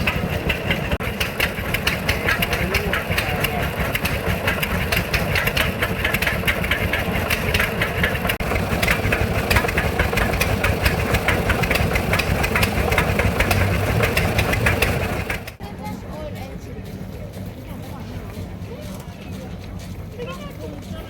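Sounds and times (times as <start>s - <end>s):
old engine clattering: 0.0s - 21.0s.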